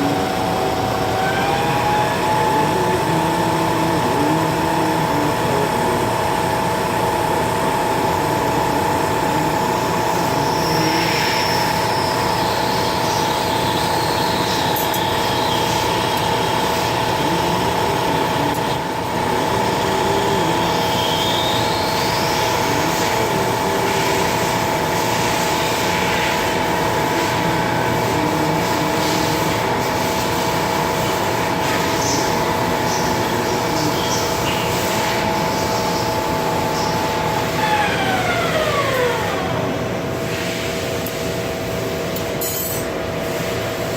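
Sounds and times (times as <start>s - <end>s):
metal lathe gear whine: 0.0s - 43.9s.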